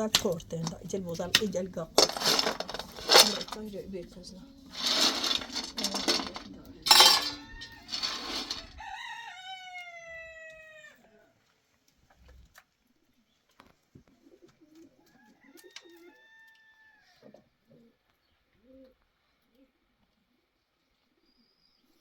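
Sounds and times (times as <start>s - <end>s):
rooster crowing: 7.1s - 11.1s, 15.1s - 17.2s.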